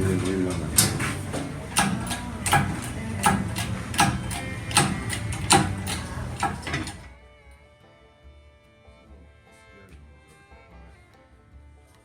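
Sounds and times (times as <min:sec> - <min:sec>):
hand tools clicking on bolts: 0:00.0 - 0:07.1.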